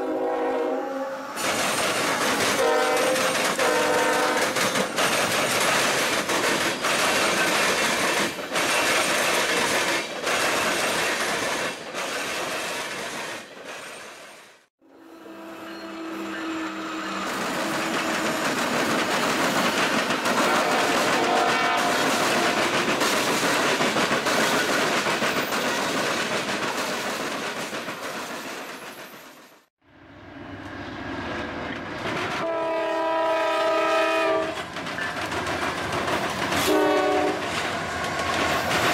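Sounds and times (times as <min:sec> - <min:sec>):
diesel locomotive running past: 0:00.0 - 0:11.5, 0:14.8 - 0:25.7, 0:29.0 - 0:38.9
freight train wheels rattling: 0:01.4 - 0:14.3, 0:17.1 - 0:29.5, 0:34.2 - 0:38.9.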